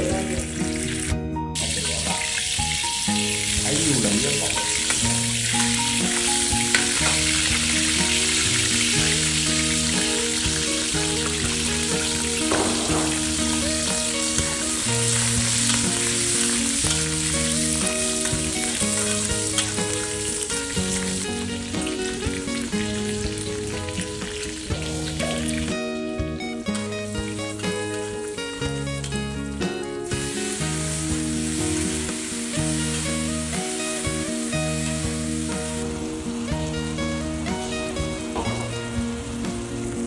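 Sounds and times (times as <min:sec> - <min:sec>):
background music: 0:00.0 - 0:40.0
food frying in a pan: 0:00.0 - 0:40.0.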